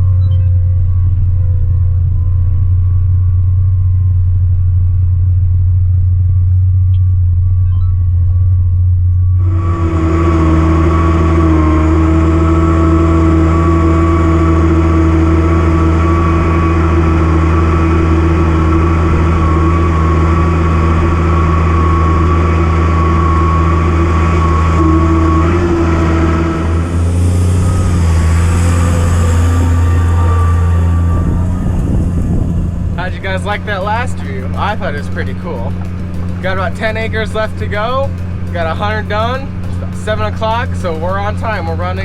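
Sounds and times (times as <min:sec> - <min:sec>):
tractor engine running: 0:00.0 - 0:42.0
broad rush of noise: 0:09.4 - 0:42.0.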